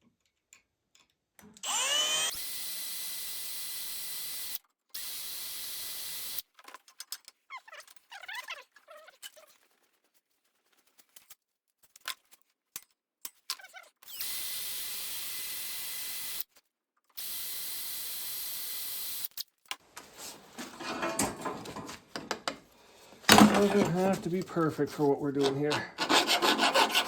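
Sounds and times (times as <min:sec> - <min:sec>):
power drill boring sheet steel: 0:01.6 - 0:06.4, 0:14.1 - 0:16.4, 0:17.2 - 0:19.3, 0:23.3 - 0:27.0
parts clattering: 0:19.9 - 0:26.0.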